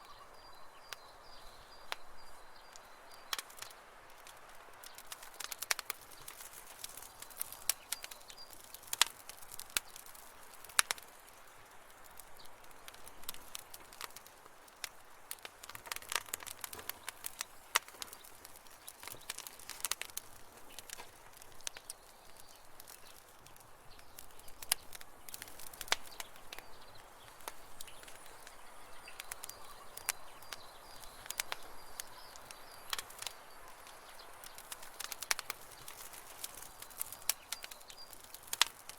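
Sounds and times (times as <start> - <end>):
faint high birdsong: 0.0 - 3.9, 16.4 - 38.9
campfire crackling and popping: 0.0 - 38.9.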